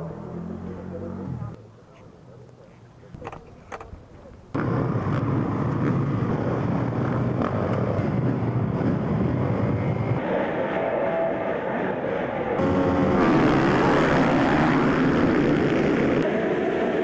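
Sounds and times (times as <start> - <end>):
motorcycle engines running hard: 0.0 - 1.6, 4.5 - 10.2, 12.6 - 16.3.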